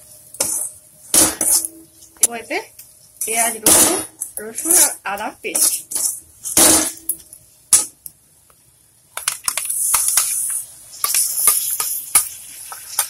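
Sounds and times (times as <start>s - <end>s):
metal spatula scraping a pan: 3.2s - 7.0s
paste sizzling in hot oil: 9.7s - 13.0s.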